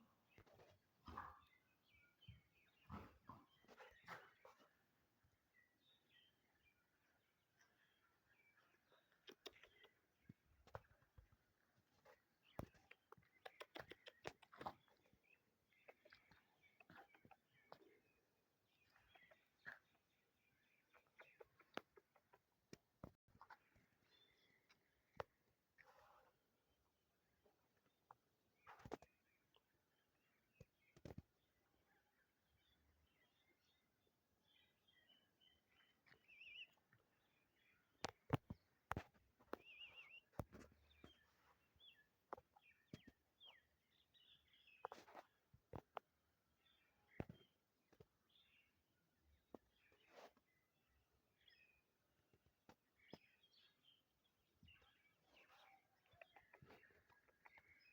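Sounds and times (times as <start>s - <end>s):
faint clicks and taps: 38.0s - 41.3s, 44.8s - 46.2s.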